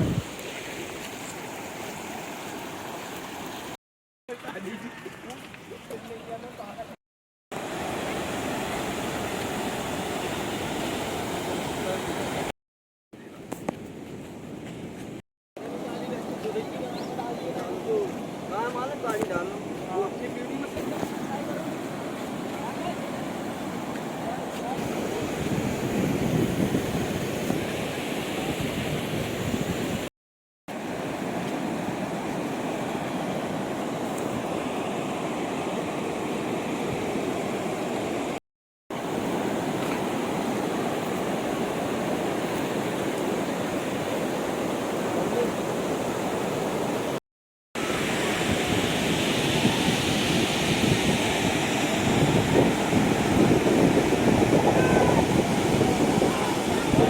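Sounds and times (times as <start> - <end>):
wind buffeting on microphone: 0.0 - 0.4, 24.8 - 30.1, 48.0 - 57.0
waterfall rushing and splashing: 7.6 - 12.5, 30.7 - 47.2, 47.8 - 57.0.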